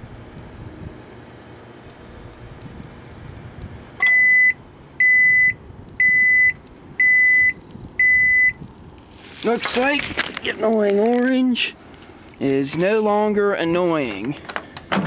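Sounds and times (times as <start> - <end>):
microwave running hum: 0.0 - 8.6
microwave beeps: 4.0 - 8.6.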